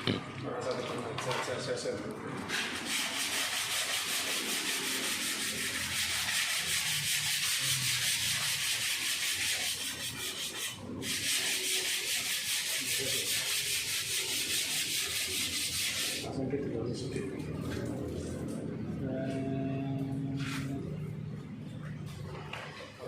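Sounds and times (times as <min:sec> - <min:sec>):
sanding body filler: 0:02.5 - 0:16.2.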